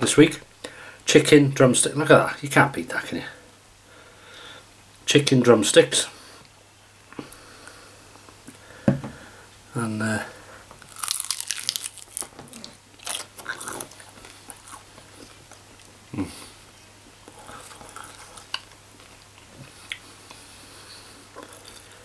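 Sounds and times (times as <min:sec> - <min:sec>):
person chewing chicken: 0:10.8 - 0:16.6, 0:17.2 - 0:20.5, 0:21.2 - 0:22.0.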